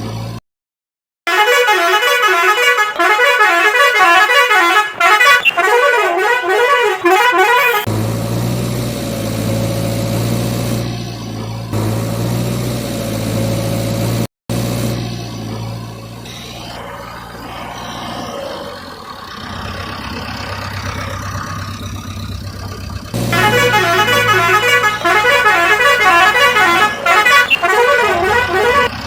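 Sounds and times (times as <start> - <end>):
siren wailing: 1.3 - 7.9, 15.8 - 19.9, 23.3 - 29.0
engine hum: 1.3 - 29.0.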